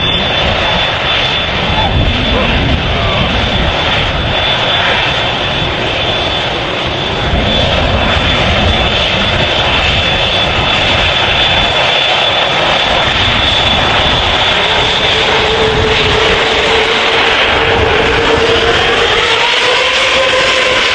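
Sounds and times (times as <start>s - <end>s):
high engine whine: 0.0s - 20.9s
jet engines running: 0.0s - 20.9s.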